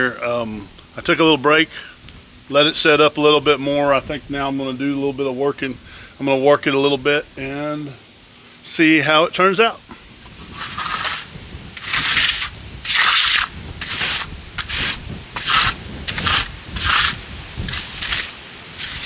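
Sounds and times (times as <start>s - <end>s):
tool scraping concrete: 10.2s - 19.0s.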